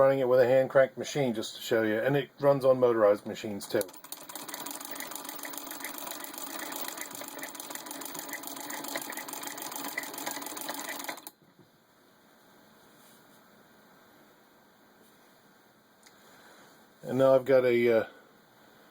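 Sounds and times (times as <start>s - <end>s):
sewing machine clatter: 3.6s - 11.3s.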